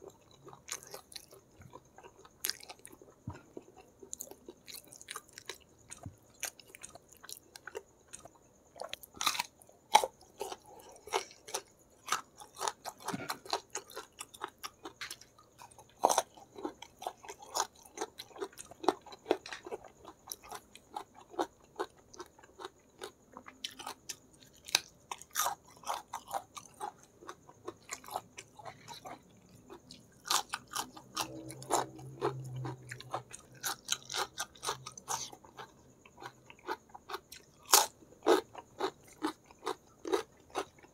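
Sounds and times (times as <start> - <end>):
crunchy bites: 0.0 - 40.9
person chewing and smacking: 0.0 - 40.9.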